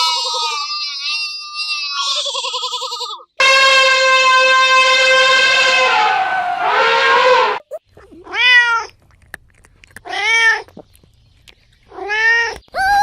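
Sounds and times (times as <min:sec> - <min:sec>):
cat meowing: 0:08.1 - 0:08.9, 0:10.0 - 0:10.7.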